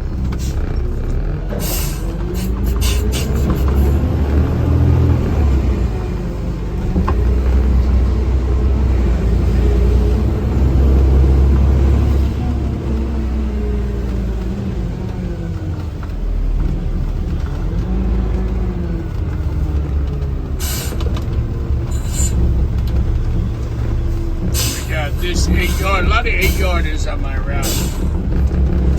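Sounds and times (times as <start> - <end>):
diesel truck engine running: 0.0 - 28.9
air brakes hiss: 1.6 - 3.5, 20.6 - 21.0, 21.9 - 22.4, 24.6 - 24.9, 27.6 - 28.1.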